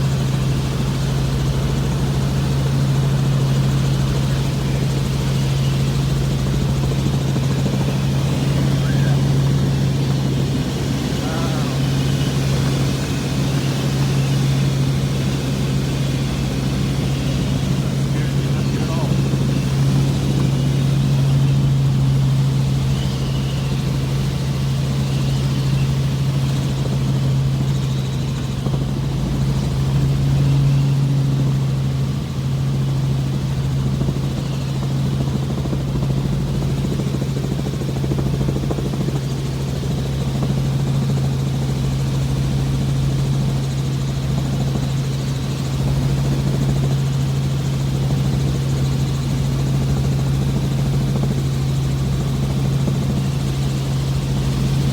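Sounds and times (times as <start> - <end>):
helicopter cabin drone: 0.0 - 54.9.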